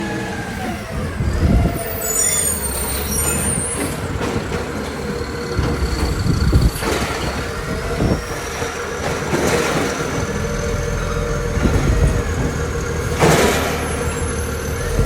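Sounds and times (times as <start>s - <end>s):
high-pitched squeal: 0.0s - 4.2s
garbage truck engine rumbling: 0.0s - 15.0s.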